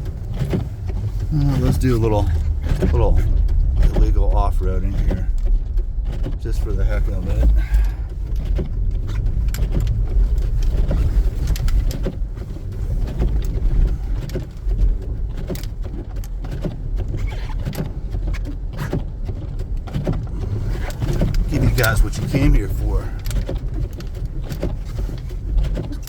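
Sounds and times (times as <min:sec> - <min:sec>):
car cabin low rumble: 0:00.0 - 0:26.0
knocks and rattles: 0:00.0 - 0:26.0.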